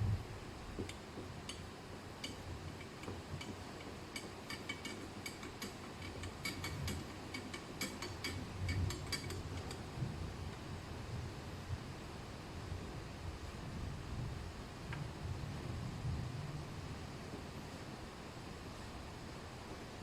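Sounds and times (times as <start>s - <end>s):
low background rumble: 0.0s - 4.5s, 5.2s - 20.0s.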